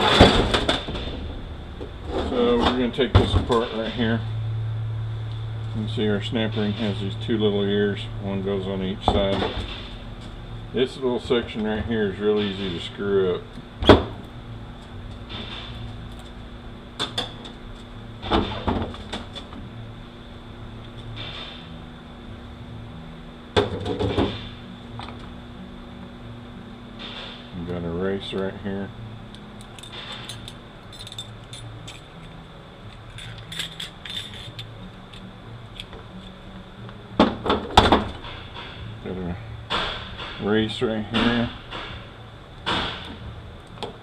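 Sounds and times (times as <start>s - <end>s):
small metal parts clinking: 29.6s - 36.3s.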